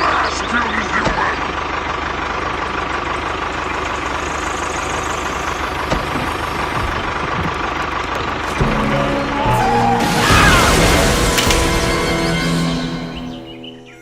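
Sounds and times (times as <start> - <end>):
engine idling with pulsing beat: 0.0 - 10.2.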